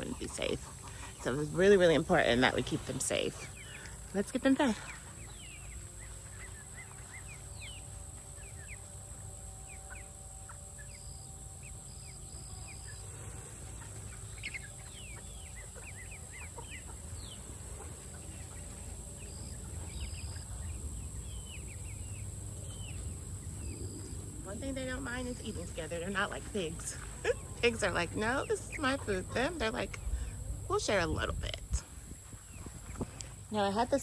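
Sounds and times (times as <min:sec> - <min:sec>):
chickens cheeping and clucking: 0:00.0 - 0:34.0
steady low rumble: 0:17.0 - 0:34.0.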